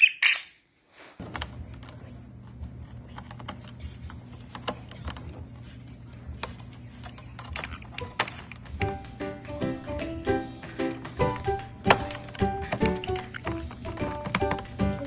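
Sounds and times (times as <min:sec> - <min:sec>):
budgerigar chirp: 0:00.0 - 0:00.6.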